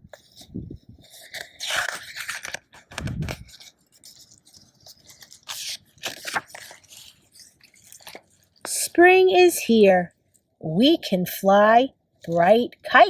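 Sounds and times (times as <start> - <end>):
paper pages rustling: 0.0 - 8.8.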